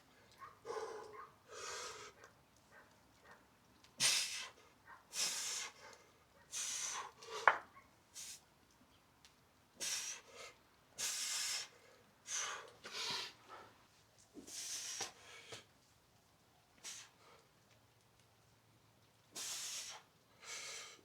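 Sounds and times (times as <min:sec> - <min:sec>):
person breathing hard: 0:00.6 - 0:02.2.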